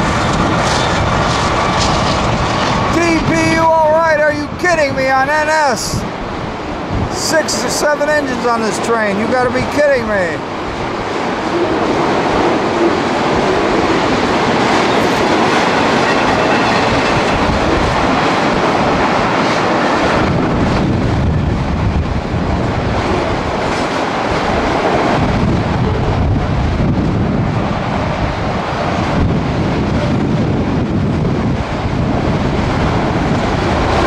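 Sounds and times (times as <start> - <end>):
freight train wheels clattering: 0.0 - 3.0, 10.7 - 21.5.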